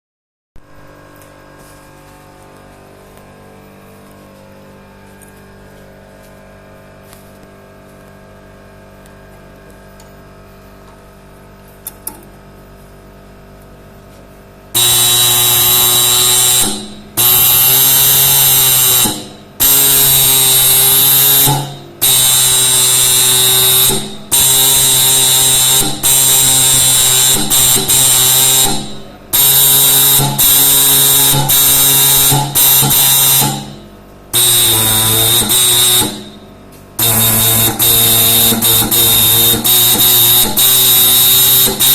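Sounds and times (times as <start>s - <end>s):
marking machine stylus hammering metal: 32.1s - 33.8s.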